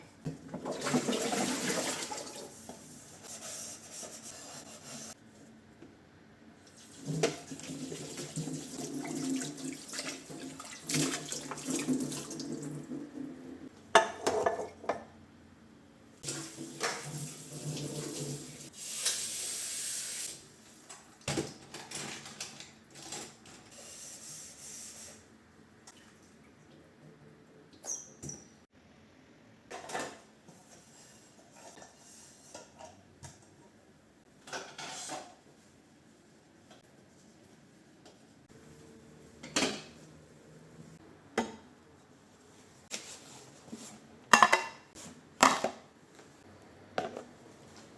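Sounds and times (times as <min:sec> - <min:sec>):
dishes being washed: 0:00.3 - 0:05.2, 0:06.7 - 0:15.1, 0:16.2 - 0:23.4, 0:44.3 - 0:45.9
dishes and cutlery clinking: 0:44.3 - 0:45.8.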